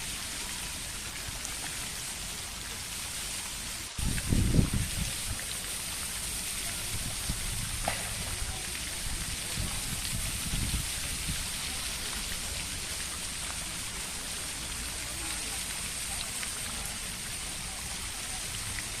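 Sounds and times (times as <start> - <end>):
running water splashing: 0.0 - 19.0.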